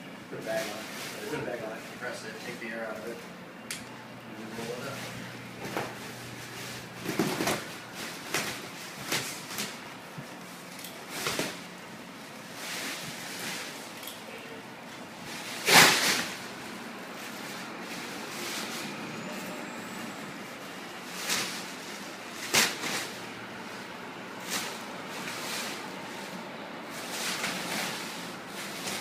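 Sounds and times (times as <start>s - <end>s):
plastic wrapping crinkling: 4.7s - 14.2s.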